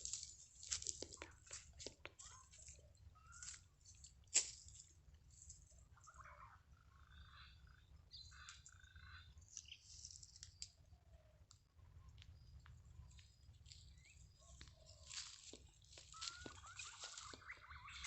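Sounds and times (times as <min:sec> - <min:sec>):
bird chirps and calls: 0:02.2 - 0:04.2, 0:05.9 - 0:10.8, 0:13.8 - 0:18.0.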